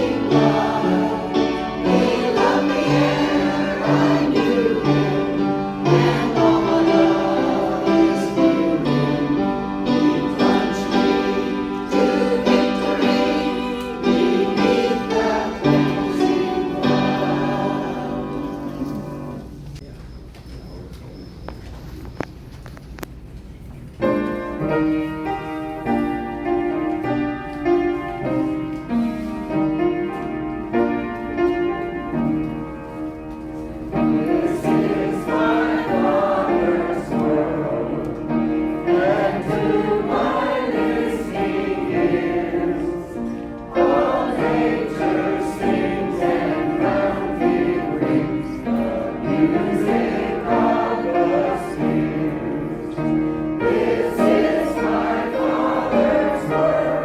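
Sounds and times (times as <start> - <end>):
choir singing: 0.0 - 19.6, 33.9 - 57.0.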